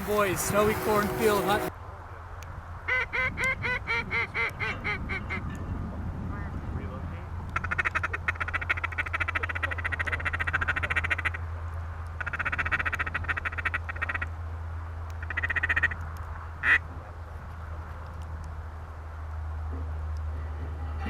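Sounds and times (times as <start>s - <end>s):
duck call chatter: 0.0s - 1.7s, 7.6s - 11.4s.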